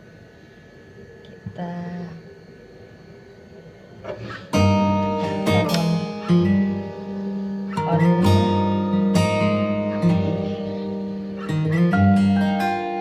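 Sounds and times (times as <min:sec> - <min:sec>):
acoustic guitar strumming chords: 0:04.1 - 0:13.0.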